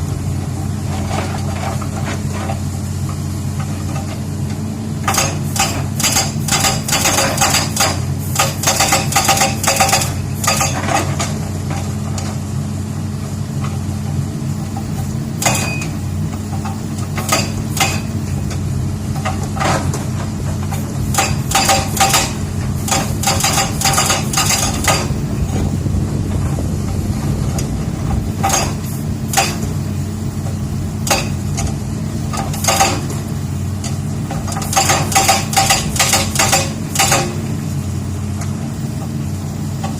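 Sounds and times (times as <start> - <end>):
diesel engine running: 0.0 - 39.9
hydraulic rock breaker hammering: 5.0 - 12.0, 14.7 - 37.7.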